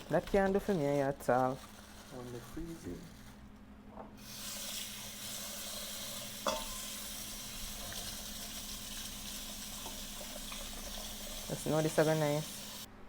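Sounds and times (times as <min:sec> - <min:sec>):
food sizzling in hot oil: 0:04.2 - 0:12.9.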